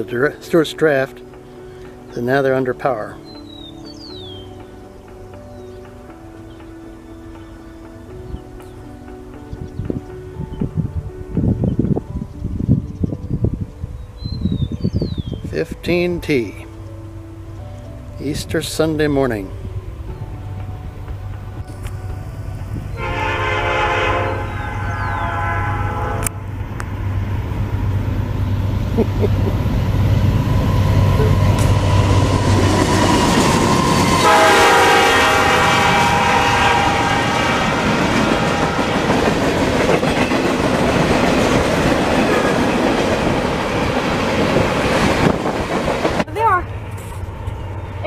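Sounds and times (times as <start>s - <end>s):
locomotive engine rumble: 16.4s - 48.0s
train air horn: 22.9s - 26.4s, 33.0s - 39.2s
train wheels clacking on rails: 29.2s - 34.8s, 36.5s - 46.3s.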